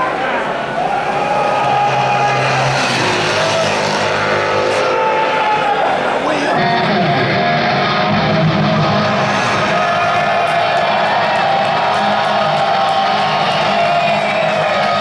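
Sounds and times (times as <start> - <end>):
electric guitar: 1.2 - 15.0
heavy metal band playing: 6.6 - 15.0.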